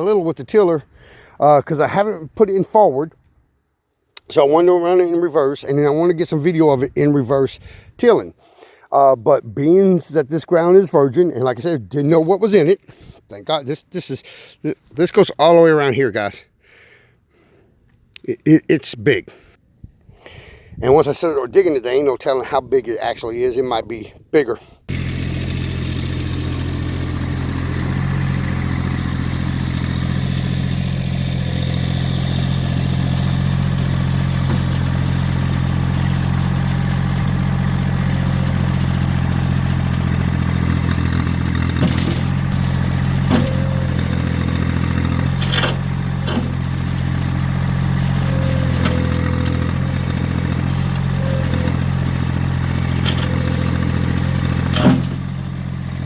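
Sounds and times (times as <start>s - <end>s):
tractor diesel engine running: 24.9s - 56.0s
metal clanks and scrapes: 41.8s - 42.4s, 45.2s - 46.6s, 53.0s - 53.6s, 54.7s - 55.3s.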